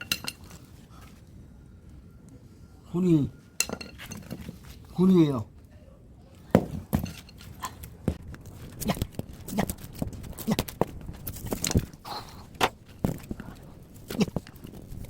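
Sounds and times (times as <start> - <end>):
metal scrap knocking and clinking: 0.0 - 0.5, 3.6 - 4.6, 6.6 - 7.4.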